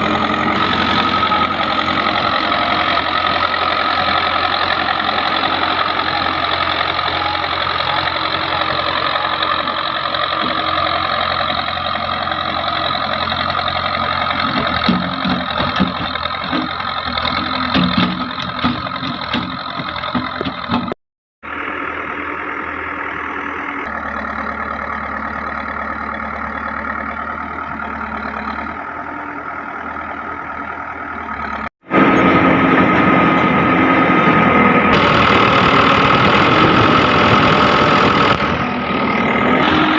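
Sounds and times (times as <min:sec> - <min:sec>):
diesel engine running: 0:00.0 - 0:39.9
clattering knocks: 0:14.5 - 0:21.0.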